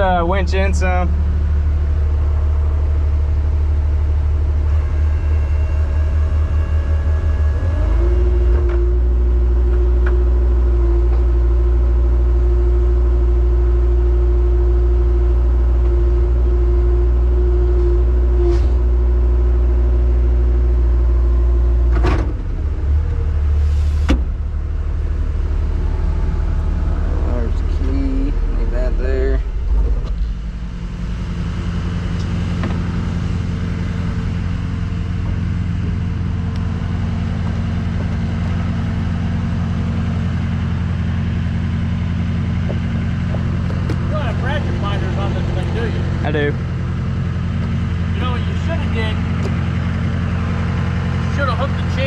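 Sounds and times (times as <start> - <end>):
truck engine running: 0.0 - 52.0.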